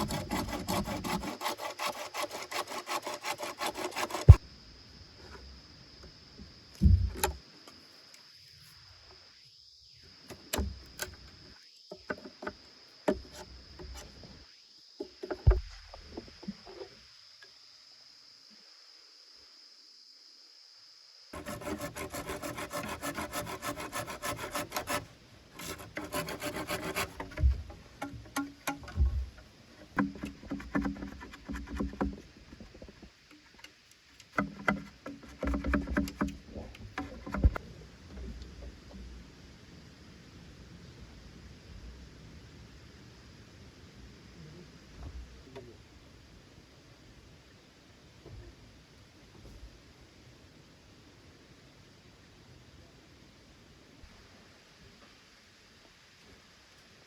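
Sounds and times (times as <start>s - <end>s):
wood and gear knocking: 0.0s - 4.4s, 25.6s - 37.6s
insect buzz: 0.0s - 37.7s
heavy thuds: 6.8s - 7.3s
low thumps: 6.8s - 7.3s.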